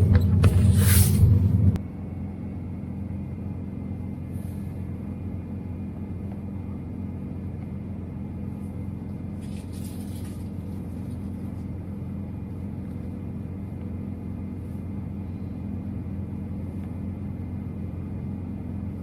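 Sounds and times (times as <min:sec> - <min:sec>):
diesel truck engine humming: 0:00.0 - 0:19.0
brief air hiss: 0:00.7 - 0:01.3.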